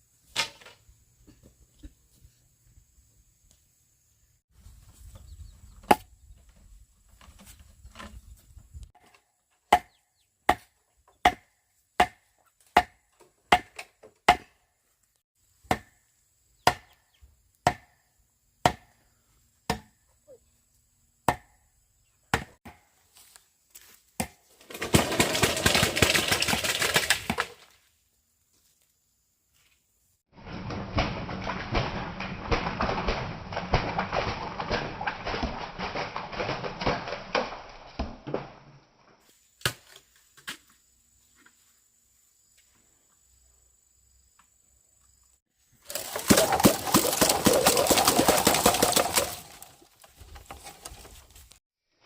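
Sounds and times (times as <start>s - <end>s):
blade chopping bamboo: 9.0s - 14.6s, 15.7s - 16.0s, 16.6s - 17.0s, 17.6s - 18.0s, 18.6s - 18.9s, 19.7s - 20.0s, 21.3s - 21.6s, 24.2s - 27.6s, 45.9s - 49.7s.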